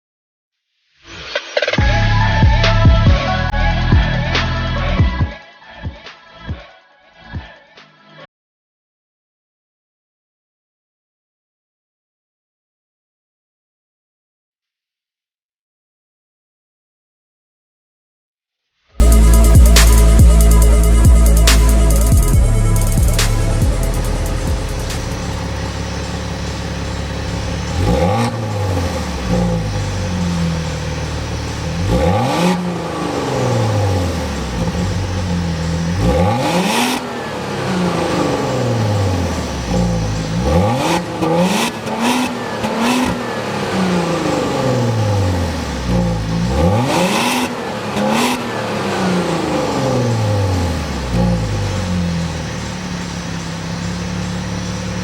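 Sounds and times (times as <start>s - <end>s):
sports car engine revving: 1.8s - 5.1s, 19.0s - 55.0s.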